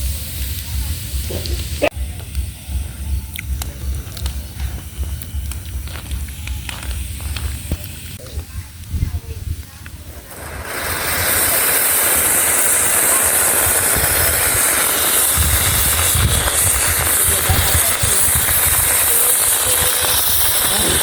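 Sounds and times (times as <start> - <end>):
low rumble: 0.0 - 11.6
firework fountain hissing: 0.0 - 21.0.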